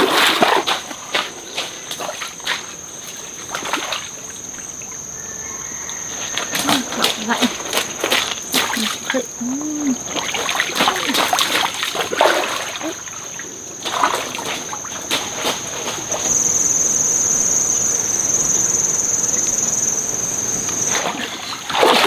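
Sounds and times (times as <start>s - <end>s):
stream water splashing: 0.0s - 5.0s, 6.3s - 16.4s, 20.8s - 22.0s
rushing water: 9.9s - 16.2s, 20.9s - 22.0s
thin high-pitched whine: 12.1s - 21.7s.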